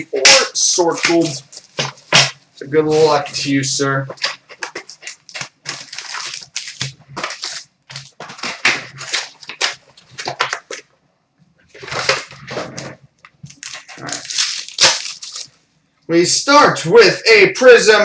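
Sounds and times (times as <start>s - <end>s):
packaging tearing and crinkling: 4.1s - 10.8s, 11.8s - 15.6s.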